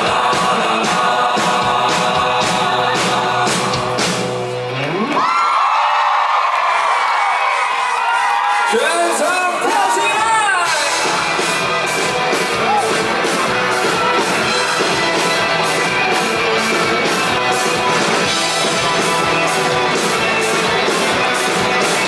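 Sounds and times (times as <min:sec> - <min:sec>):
steady drum beat: 0:00.0 - 0:04.6, 0:09.3 - 0:22.0
electric guitars: 0:00.0 - 0:05.6, 0:10.6 - 0:22.0.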